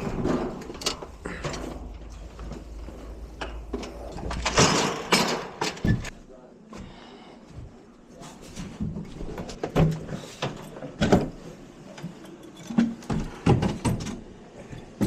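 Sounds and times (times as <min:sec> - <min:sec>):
equipment knocking and clunking: 0:00.0 - 0:06.2.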